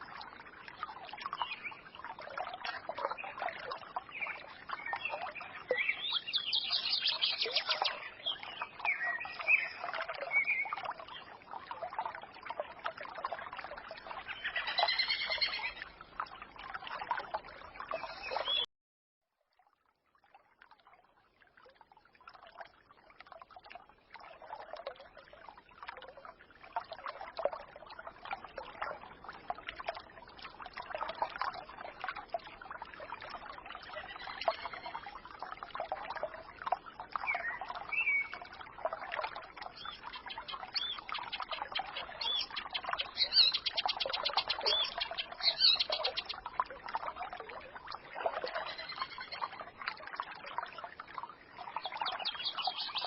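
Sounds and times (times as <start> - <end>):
stream babbling and gurgling: 0.0 - 18.7, 19.3 - 53.0
songbirds chirping: 1.1 - 11.4, 17.4 - 18.7, 39.6 - 46.5, 51.6 - 53.0.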